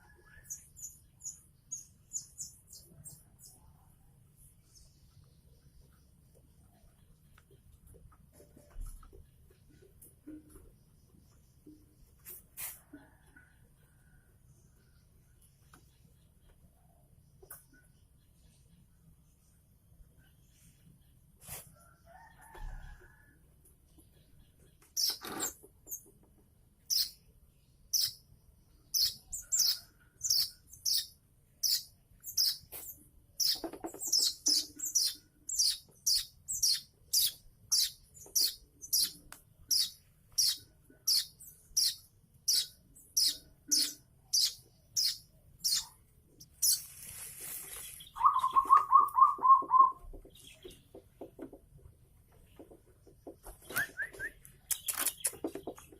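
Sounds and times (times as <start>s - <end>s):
young bird chirping: 24.9s - 26.1s, 26.8s - 27.3s, 27.9s - 50.8s, 53.7s - 55.9s.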